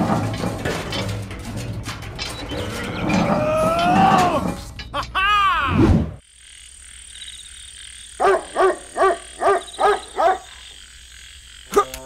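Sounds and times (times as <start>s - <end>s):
animal calls rising and falling: 2.5s - 6.2s
high insect trill: 6.2s - 12.0s.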